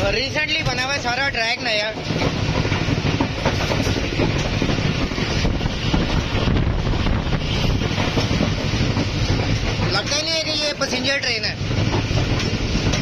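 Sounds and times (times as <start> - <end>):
train wheels rumbling on rail: 0.0 - 13.0
wind on microphone: 2.2 - 9.8.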